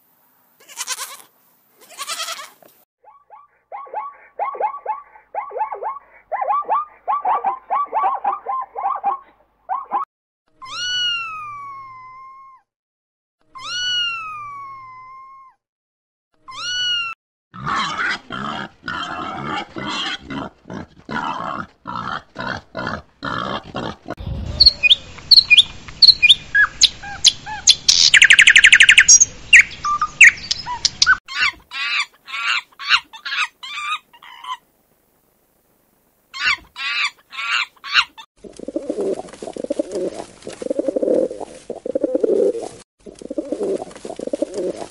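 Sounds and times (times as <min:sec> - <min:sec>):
birds chirping and trilling: 0:03.1 - 0:10.0, 0:24.6 - 0:34.6
pigeon cooing: 0:38.4 - 0:44.9.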